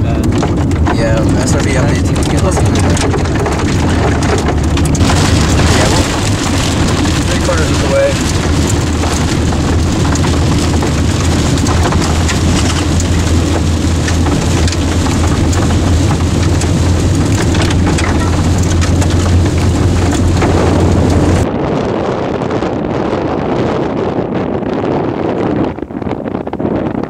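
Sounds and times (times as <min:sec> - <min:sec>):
heavy rain on vehicle roof: 0:00.0 - 0:21.5
low rumble: 0:00.0 - 0:26.9.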